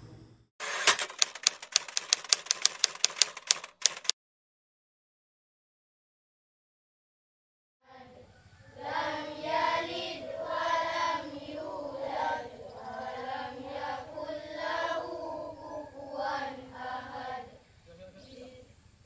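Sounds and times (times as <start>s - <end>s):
children singing in unison: 7.9s - 17.6s.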